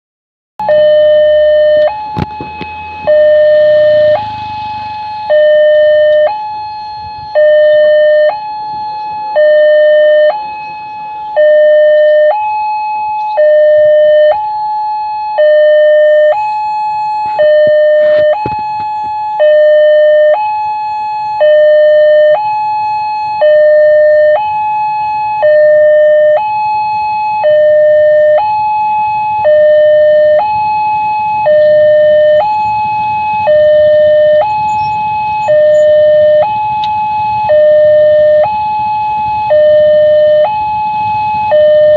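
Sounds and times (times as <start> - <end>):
level crossing two-tone alarm: 0.6 - 41.9.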